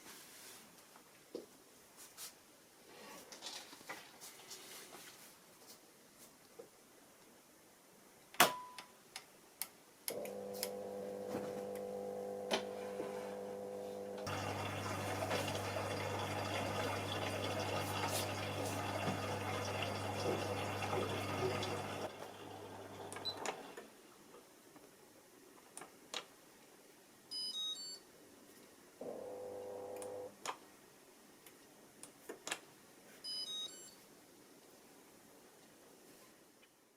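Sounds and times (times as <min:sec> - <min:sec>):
steady electric hum: 0:10.2 - 0:23.5, 0:29.1 - 0:30.4.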